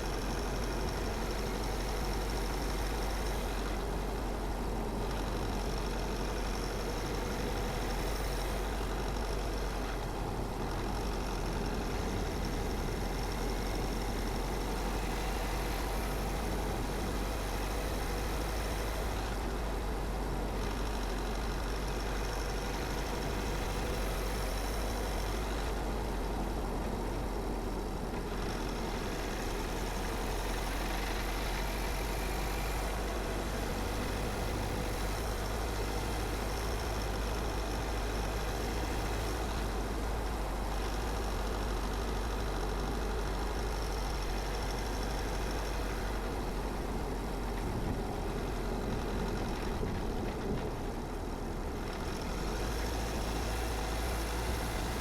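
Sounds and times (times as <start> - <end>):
car engine rumble: 0.0 - 55.0.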